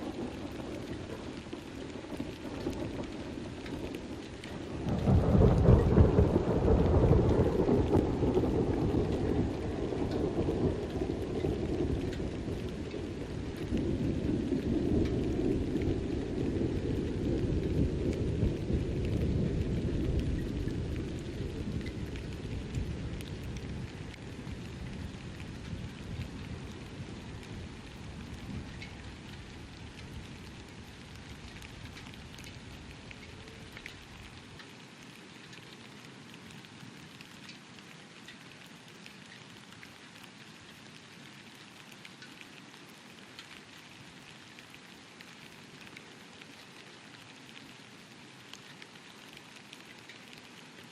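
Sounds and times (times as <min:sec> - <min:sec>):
low rumble of thunder: 0:00.0 - 0:34.6.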